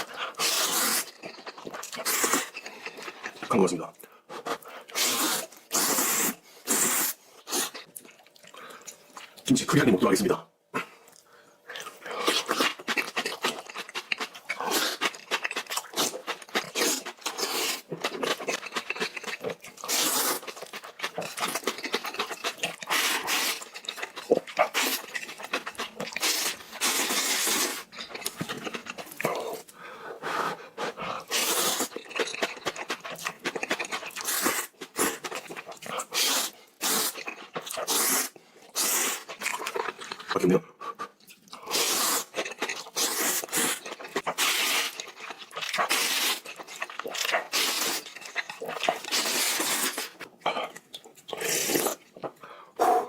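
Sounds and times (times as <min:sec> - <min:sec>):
wet chewing and crunching: 0:00.0 - 0:03.7, 0:04.3 - 0:09.4, 0:11.0 - 0:29.8, 0:30.7 - 0:53.0.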